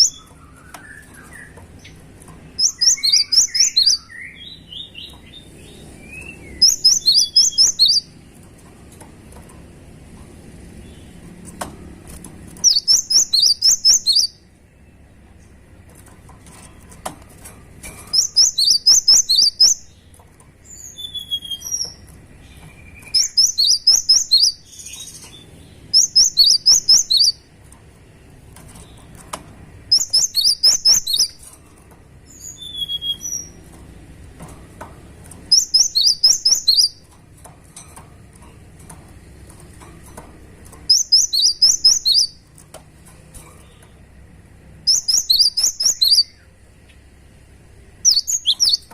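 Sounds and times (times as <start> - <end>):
bird chirping: 0.0 - 8.4, 12.5 - 27.8, 28.5 - 31.5, 32.2 - 33.8, 35.3 - 37.2, 40.7 - 42.7, 44.8 - 47.0, 48.0 - 48.9.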